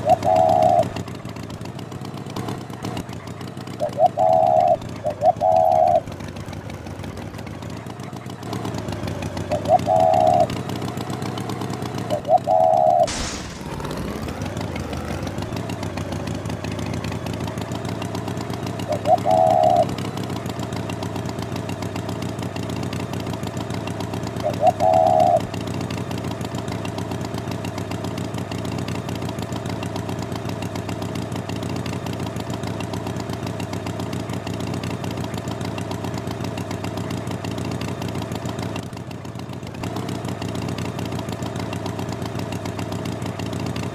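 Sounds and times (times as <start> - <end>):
tractor engine running: 0.0 - 43.9
falling whoosh: 13.1 - 14.4.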